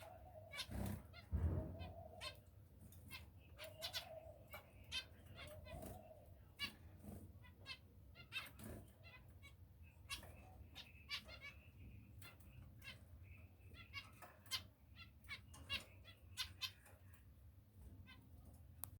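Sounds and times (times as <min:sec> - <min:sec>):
finches chirping: 0:00.0 - 0:18.9.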